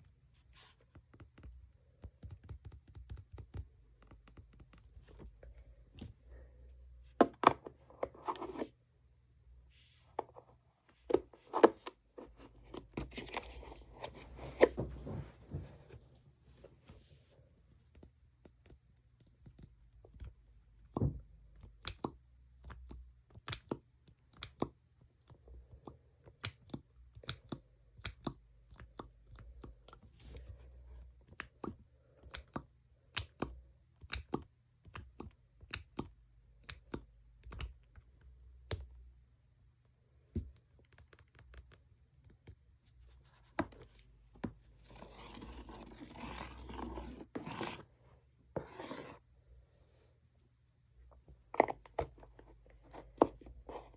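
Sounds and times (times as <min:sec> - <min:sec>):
steady scratching: 0:44.8 - 0:48.0.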